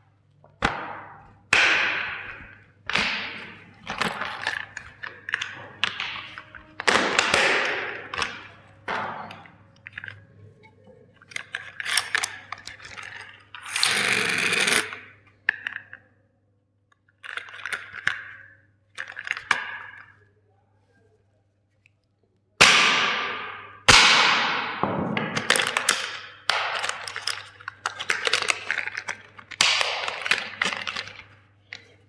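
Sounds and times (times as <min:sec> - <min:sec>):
toys being crushed: 0:00.6 - 0:10.3, 0:11.2 - 0:16.0, 0:22.6 - 0:32.0
plastic pieces clattering: 0:00.6 - 0:10.4, 0:11.1 - 0:16.0, 0:17.0 - 0:20.2, 0:25.2 - 0:32.0.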